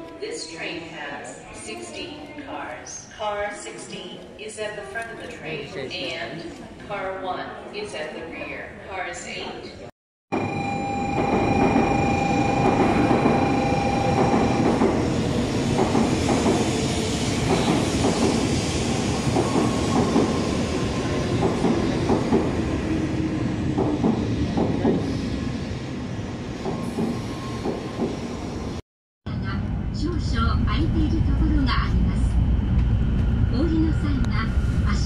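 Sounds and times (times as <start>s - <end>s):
high train whine: 10.3s - 35.0s
train wheels rumbling: 11.1s - 28.8s.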